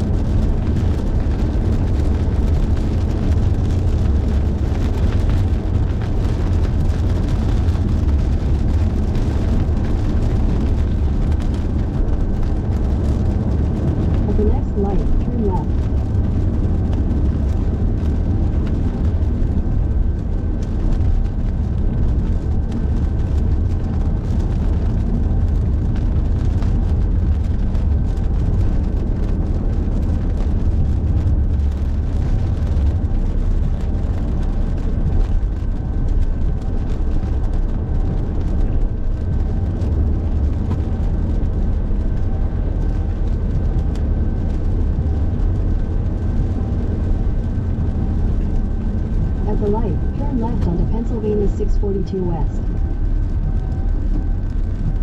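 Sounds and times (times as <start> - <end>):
rain spatter ticking on car: 0.0 - 51.8, 52.6 - 55.0
car road and engine rumble: 0.0 - 55.0.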